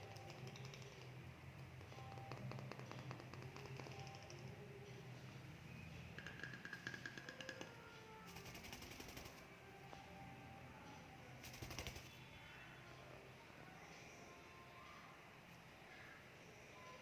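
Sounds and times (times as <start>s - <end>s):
bird beak clicking: 0.0s - 1.2s, 6.2s - 9.3s.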